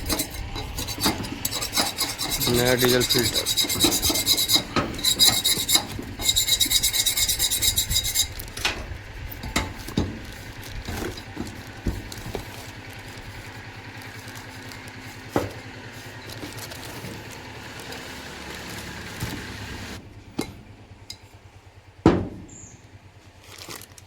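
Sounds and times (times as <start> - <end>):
tools clicking and knocking: 0.0 - 10.2
hand tool rasping: 0.0 - 20.0
steady low hum: 0.0 - 23.2.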